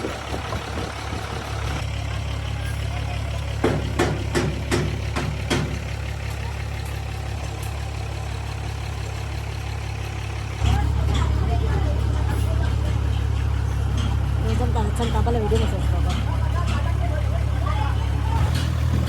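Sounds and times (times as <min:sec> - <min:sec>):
heavy engine idling: 0:00.0 - 0:19.0
sharp knocks: 0:03.6 - 0:05.8.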